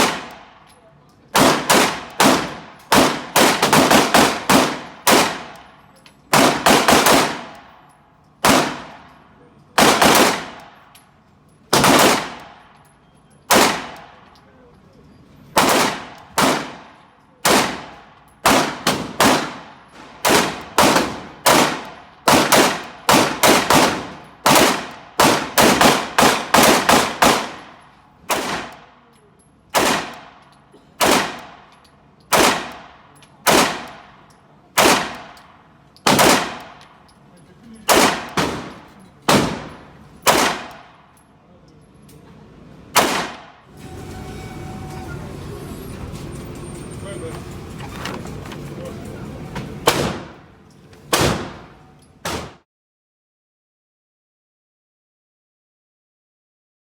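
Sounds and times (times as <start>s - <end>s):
pistol shots: 0.0s - 0.7s, 1.3s - 5.7s, 6.3s - 7.8s, 8.4s - 9.2s, 9.8s - 10.8s, 11.7s - 12.8s, 13.5s - 14.3s, 15.6s - 29.0s, 29.7s - 30.4s, 31.0s - 34.2s, 34.8s - 37.0s, 37.9s - 41.1s, 42.9s - 43.6s, 49.8s - 50.5s, 51.1s - 52.6s.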